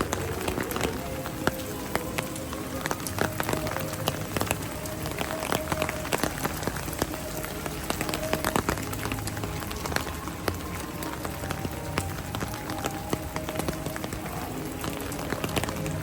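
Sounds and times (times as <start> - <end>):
heavy rain falling: 0.0 - 16.0
raindrops ticking near microphone: 0.0 - 16.0.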